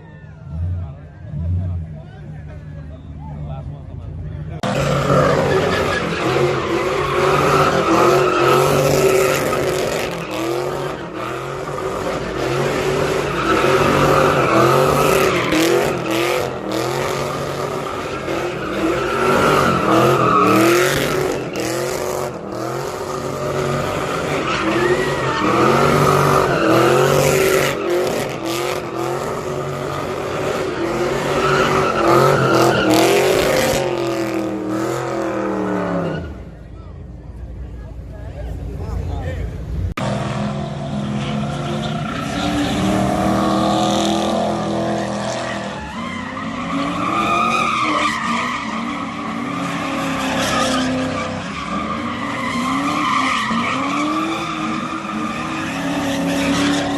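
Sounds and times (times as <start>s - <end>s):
tyres squealing and skidding: 0.0s - 56.9s
car engine revving hard: 4.6s - 36.2s, 40.0s - 56.9s.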